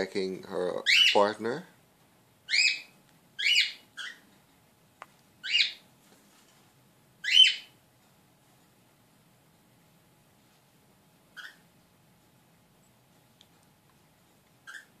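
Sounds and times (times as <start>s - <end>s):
bird calling loudly: 2.5s - 4.3s, 5.4s - 5.8s, 7.2s - 7.7s.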